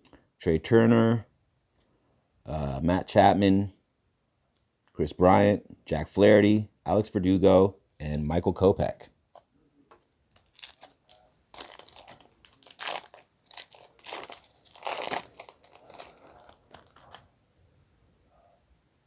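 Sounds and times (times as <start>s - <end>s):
wrapper tearing and crinkling: 10.3s - 17.3s.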